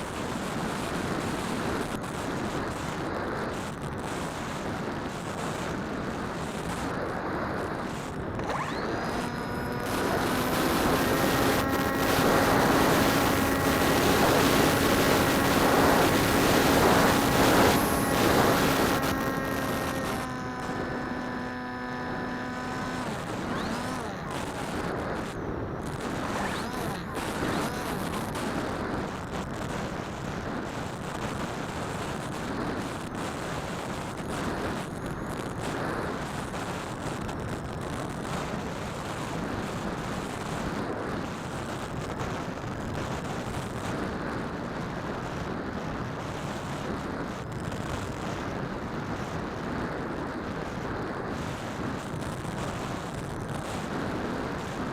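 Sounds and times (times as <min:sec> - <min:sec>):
wind noise on microphone: 0:00.0 - 0:54.9
motor and propeller hum: 0:05.0 - 0:30.6.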